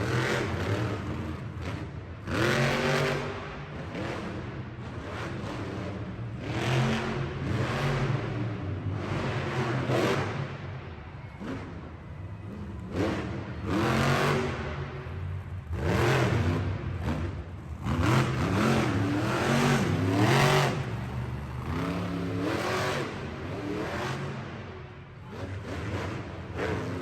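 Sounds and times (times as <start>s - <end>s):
truck engine revving hard: 15.7s - 24.6s.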